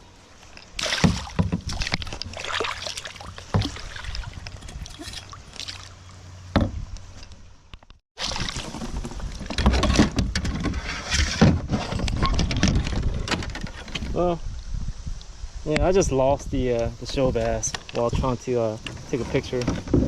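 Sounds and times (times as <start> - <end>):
water sloshing and splashing: 0.3 - 6.9, 8.2 - 10.5.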